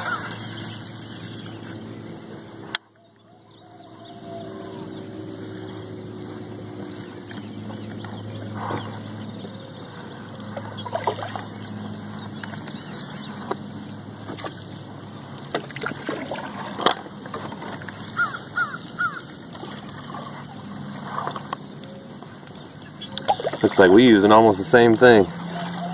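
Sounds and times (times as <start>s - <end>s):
bird calling: 0.0s - 15.4s, 17.3s - 25.9s
low hum: 0.0s - 25.9s.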